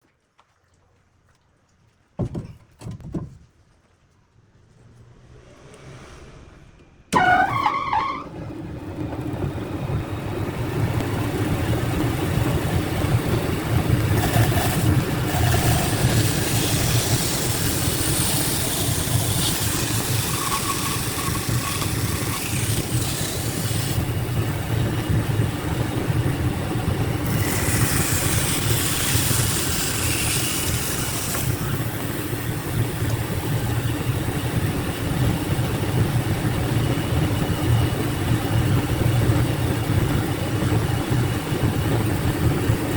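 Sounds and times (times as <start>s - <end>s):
machine humming: 8.2s - 36.0s
machine hissing: 13.8s - 24.8s, 27.2s - 33.7s.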